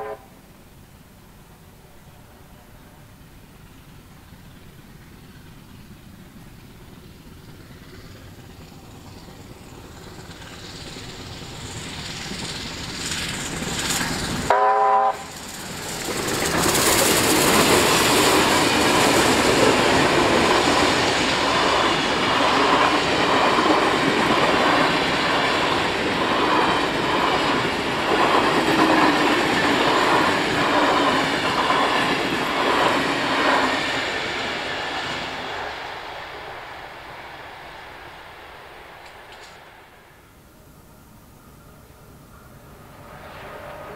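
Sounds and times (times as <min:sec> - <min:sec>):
train whistle blast: 0:00.0 - 0:00.4, 0:14.5 - 0:15.4
train rumbling past: 0:00.0 - 0:43.9
wheels clickety-clack: 0:03.6 - 0:35.8.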